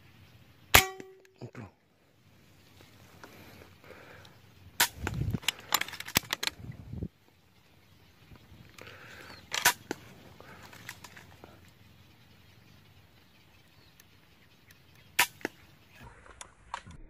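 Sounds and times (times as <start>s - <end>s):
air rifle shots: 0.8s - 1.2s, 4.8s - 5.3s, 9.5s - 10.0s, 15.2s - 15.6s.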